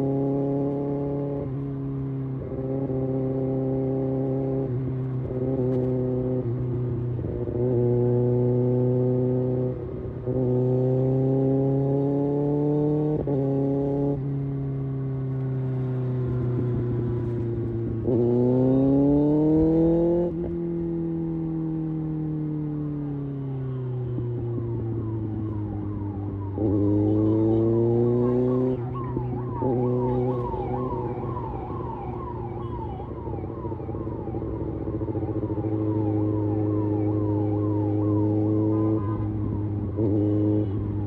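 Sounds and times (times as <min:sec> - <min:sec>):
motorcycle engine revving: 0:00.0 - 0:23.3, 0:24.4 - 0:41.0.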